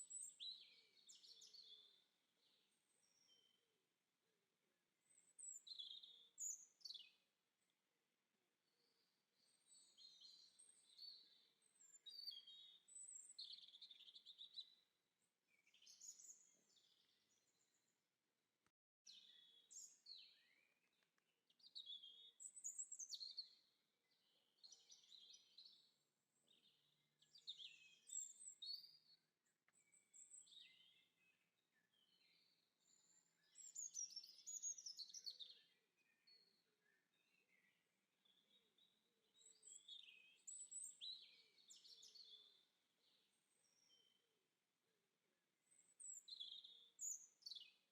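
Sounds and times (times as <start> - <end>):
songbird chirping: 0.0 - 3.9, 5.0 - 7.7, 8.6 - 17.9, 19.1 - 44.3, 45.6 - 47.9.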